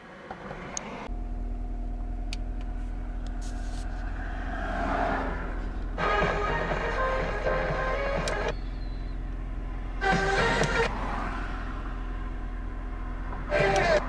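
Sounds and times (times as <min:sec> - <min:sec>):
car engine and road drone: 0:00.0 - 0:14.0
background music: 0:06.0 - 0:08.6, 0:10.0 - 0:10.9.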